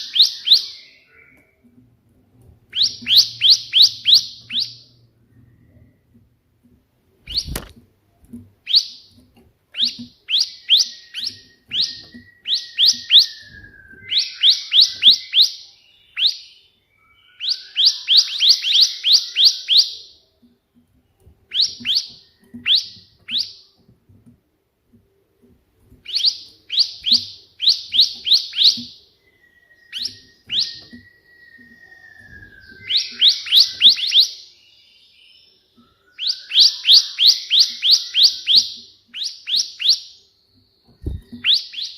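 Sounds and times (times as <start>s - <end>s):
thin gliding whistle: 26.1s - 34.4s
bird singing sharp chirps: 26.1s - 35.1s, 40.9s - 41.9s.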